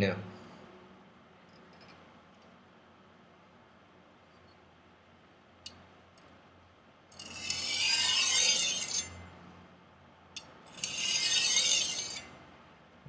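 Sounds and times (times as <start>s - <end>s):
knife scraping on whetstone: 7.2s - 9.2s, 10.7s - 12.3s.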